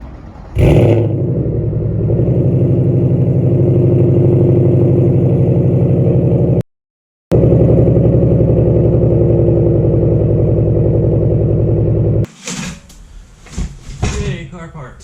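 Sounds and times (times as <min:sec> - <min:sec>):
car engine starting and idling: 0:00.0 - 0:06.6, 0:07.3 - 0:12.3.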